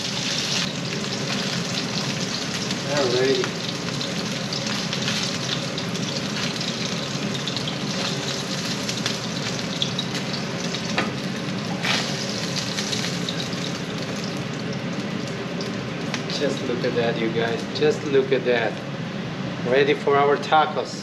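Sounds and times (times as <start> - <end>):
fish sizzling in a skillet: 0.0 - 16.4.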